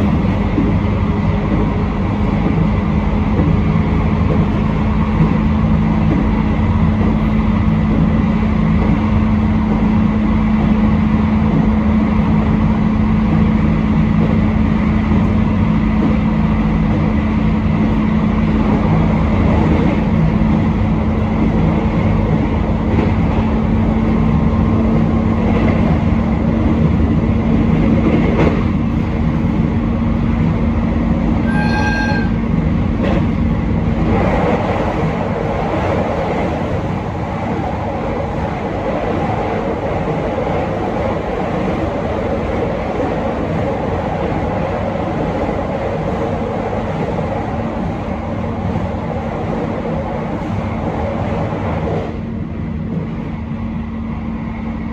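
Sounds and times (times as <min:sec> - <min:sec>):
train running on track: 0:00.0 - 0:54.9
short train horn toot: 0:31.4 - 0:32.5.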